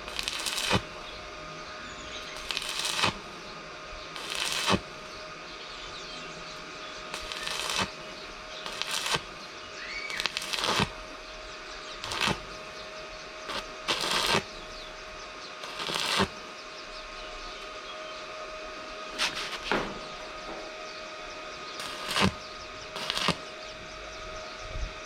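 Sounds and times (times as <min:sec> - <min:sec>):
short rasping work strokes: 0:02.4 - 0:03.3, 0:04.1 - 0:04.9, 0:07.1 - 0:08.0, 0:08.6 - 0:09.4, 0:10.1 - 0:11.0, 0:12.0 - 0:12.7, 0:13.4 - 0:14.6, 0:15.6 - 0:16.4, 0:19.2 - 0:20.0, 0:21.8 - 0:23.5.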